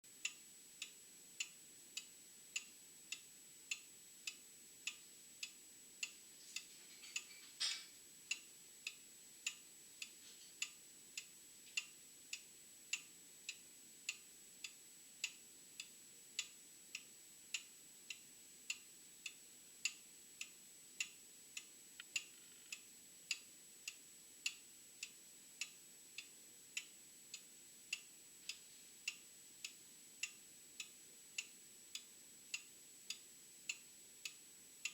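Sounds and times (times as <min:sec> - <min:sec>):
clock ticking: 0:00.2 - 0:07.3, 0:08.3 - 0:34.9
faint high-pitched whine: 0:10.7 - 0:34.9.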